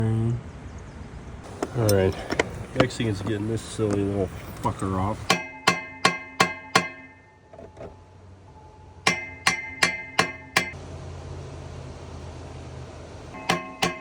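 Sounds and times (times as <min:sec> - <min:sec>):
low steady hum: 0:01.4 - 0:14.0
hammer blows on metal: 0:05.2 - 0:07.4, 0:09.0 - 0:10.8, 0:13.4 - 0:14.0.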